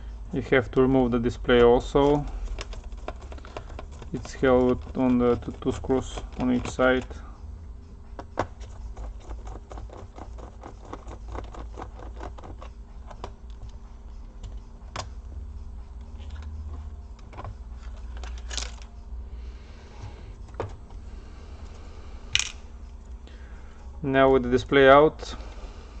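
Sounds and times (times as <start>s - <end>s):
sharp clicks of parts handled: 17.1s - 19.0s, 21.7s - 23.2s.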